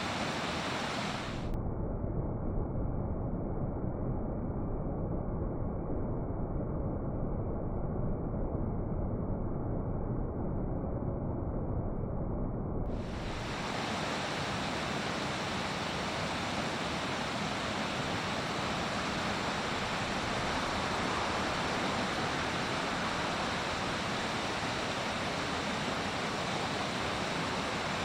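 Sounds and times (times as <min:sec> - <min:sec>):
fast-flowing river water rushing: 0:13.2 - 0:28.0.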